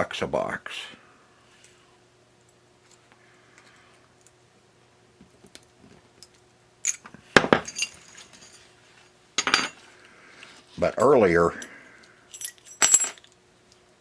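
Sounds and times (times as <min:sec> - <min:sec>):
metal parts clinking and rattling: 0:06.8 - 0:08.7, 0:12.3 - 0:13.4.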